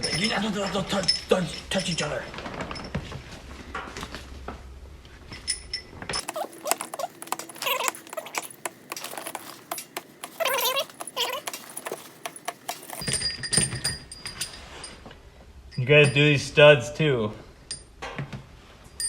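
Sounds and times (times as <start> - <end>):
animal drawn-out call: 6.2 - 13.0
metal parts clinking: 6.2 - 13.3.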